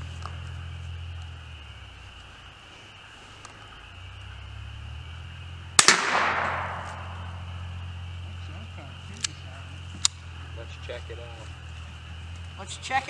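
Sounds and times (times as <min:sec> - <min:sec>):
rifle shot with echo: 0:05.8 - 0:07.6.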